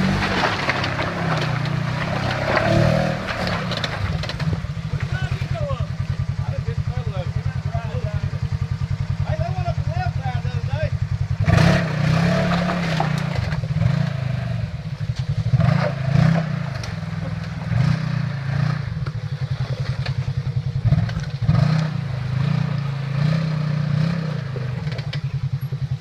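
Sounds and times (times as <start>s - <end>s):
engine revving in surges: 0.0s - 5.6s, 11.2s - 26.0s
knocks and scrapes: 0.0s - 5.6s, 11.8s - 14.2s.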